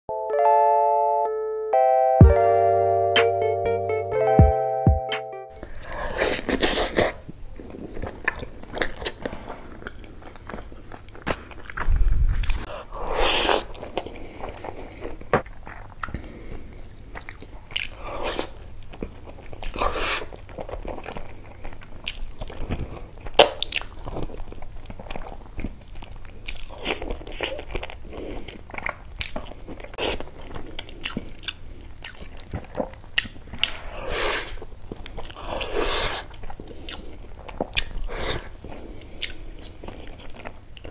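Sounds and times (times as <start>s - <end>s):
man chewing meat: 5.6s - 40.9s.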